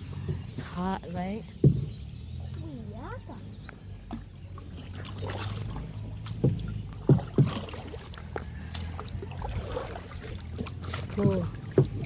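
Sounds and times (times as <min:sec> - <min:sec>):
paddles splashing in water: 0:00.0 - 0:12.0
sharp knocks: 0:01.6 - 0:02.0, 0:06.4 - 0:07.8.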